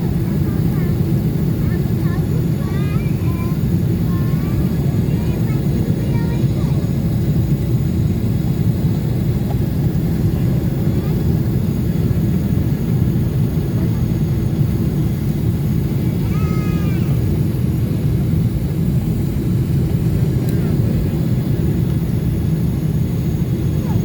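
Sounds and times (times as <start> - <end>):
jet engines rumbling: 0.0 - 24.0
small child crying: 16.3 - 17.2.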